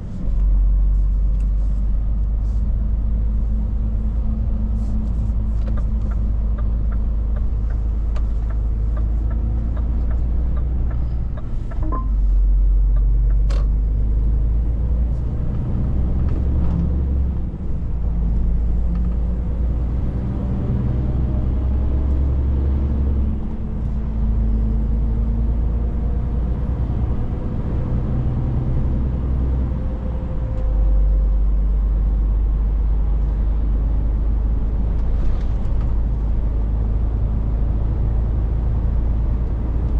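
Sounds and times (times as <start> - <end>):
truck engine and road drone: 0.0 - 39.9.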